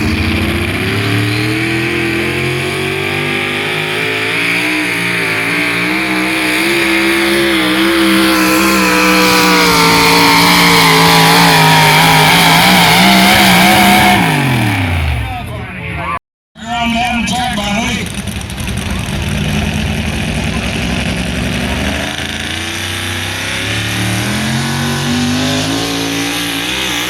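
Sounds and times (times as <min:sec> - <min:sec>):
vehicle engine running at high revs: 0:00.0 - 0:15.4, 0:17.5 - 0:27.0.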